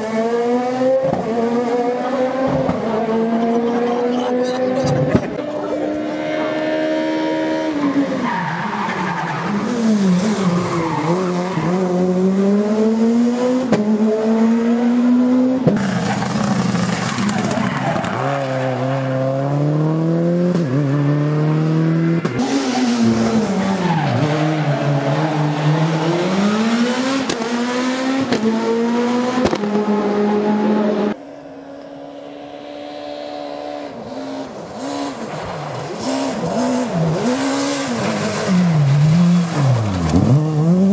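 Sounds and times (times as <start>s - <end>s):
distant car engine: 0.0s - 40.9s
rally car engines at full throttle: 0.0s - 40.9s
tyre skid noise: 15.6s - 19.2s.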